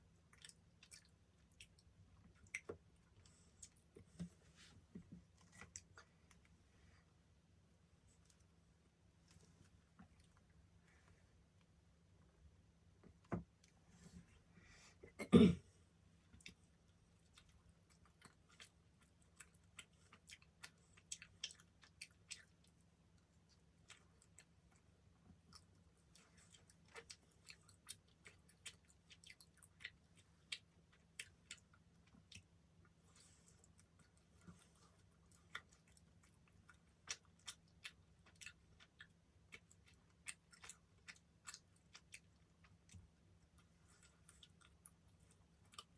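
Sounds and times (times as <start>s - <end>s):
chewing with mouth clicks: 0.0s - 4.3s, 16.2s - 45.9s.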